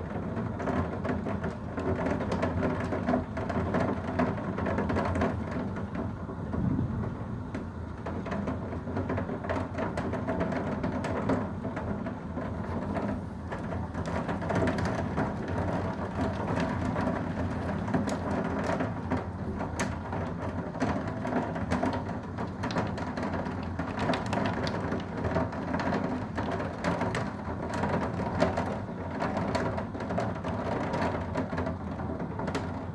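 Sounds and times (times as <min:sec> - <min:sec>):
low rumble of wind: 0:00.0 - 0:32.9
steady rain: 0:00.0 - 0:32.9.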